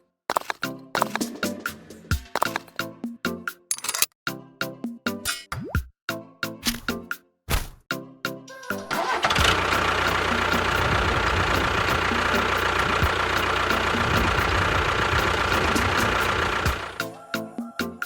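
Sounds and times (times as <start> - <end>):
motor rattling hum with whine: 9.4 - 17.0.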